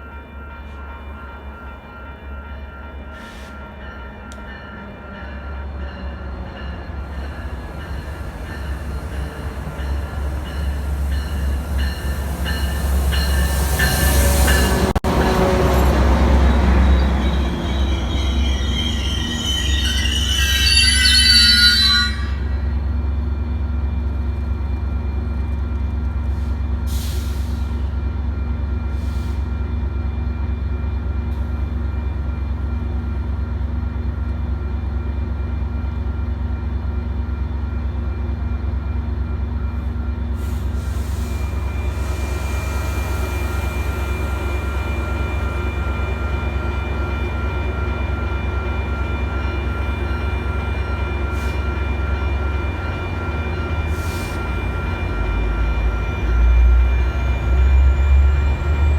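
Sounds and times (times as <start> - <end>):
train rumbling: 1.2 - 58.9
high-pitched whining tones: 15.8 - 23.0.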